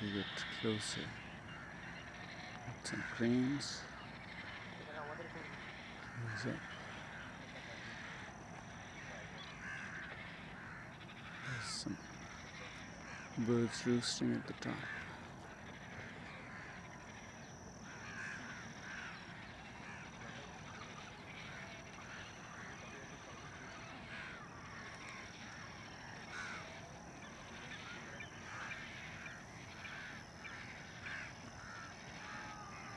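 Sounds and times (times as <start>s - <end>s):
flock of birds chattering: 0.0s - 32.9s.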